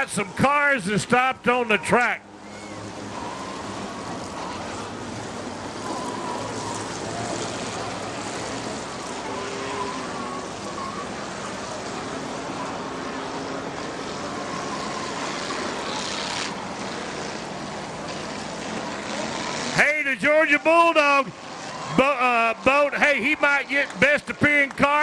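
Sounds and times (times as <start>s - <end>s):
car engines running on a track: 1.0s - 19.8s.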